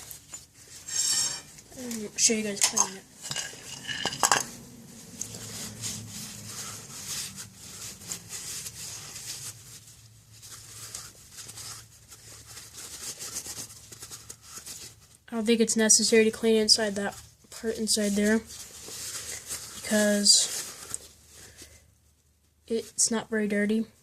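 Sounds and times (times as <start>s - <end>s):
scrubbing metal parts by hand: 0.0s - 15.0s.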